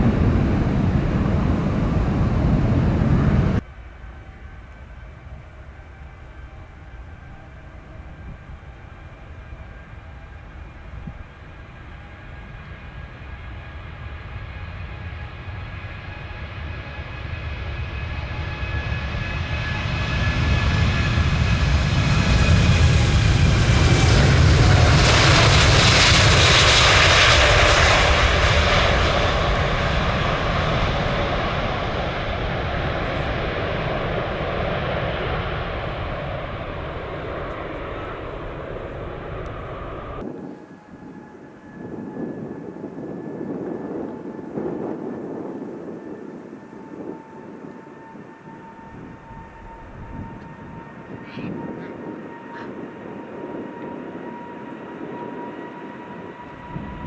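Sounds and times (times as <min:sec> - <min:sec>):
jet airliner flying past: 0:00.0 - 0:57.0
jet engine whine falling in pitch: 0:00.0 - 0:57.0.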